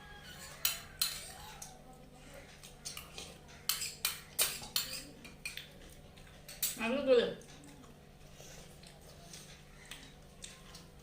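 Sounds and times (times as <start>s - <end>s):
cutlery clinking on plates: 0.2s - 1.8s, 2.9s - 5.7s, 6.3s - 6.9s.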